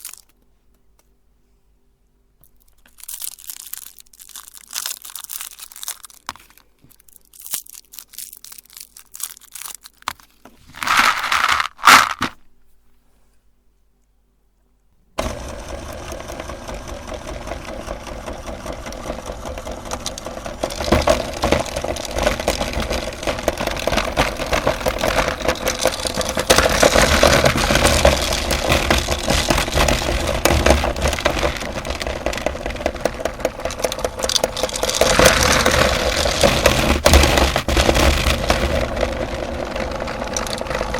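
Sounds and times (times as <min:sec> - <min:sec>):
meat grinder crushing candy: 0:02.9 - 0:06.6, 0:15.2 - 0:40.9.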